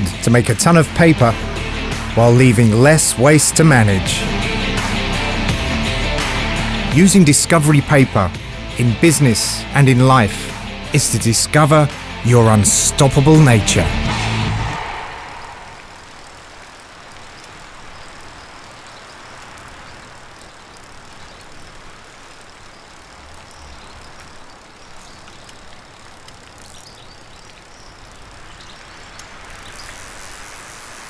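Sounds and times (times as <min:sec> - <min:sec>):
steady rushing noise: 0:10.6 - 0:16.9.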